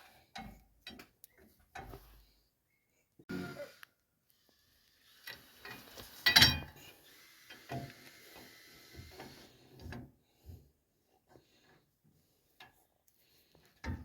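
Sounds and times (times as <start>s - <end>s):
metal tools knocking and clinking: 6.3s - 6.8s.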